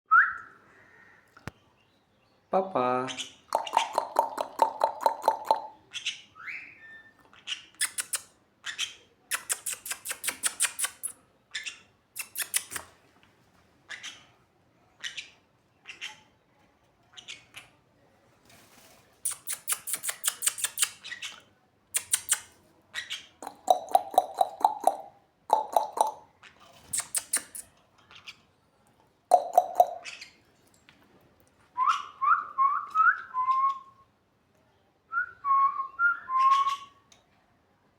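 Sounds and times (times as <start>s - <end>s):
parrot shrill clicking chatter: 7.7s - 8.3s, 9.3s - 11.2s, 12.2s - 12.9s, 19.2s - 21.3s, 21.9s - 22.6s, 26.8s - 27.7s.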